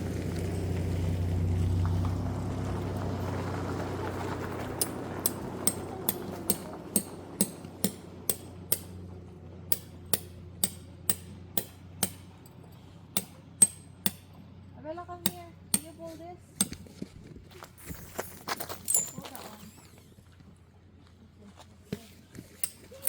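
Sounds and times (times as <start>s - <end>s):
hammer strikes: 4.8s - 9.0s, 9.7s - 12.5s, 13.2s - 14.4s, 15.2s - 16.0s, 16.6s - 16.8s, 22.6s - 22.9s.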